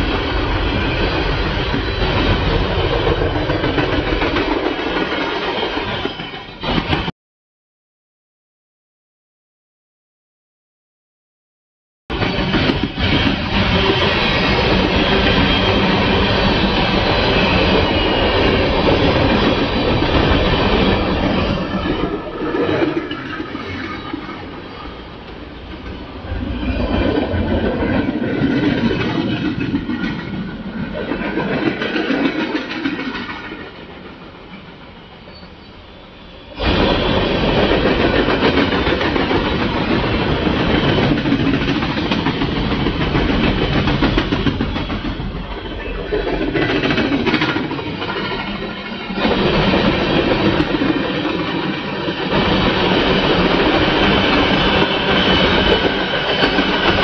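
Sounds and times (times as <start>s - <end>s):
freight train wheels clattering: 12.1s - 35.7s, 36.6s - 57.0s.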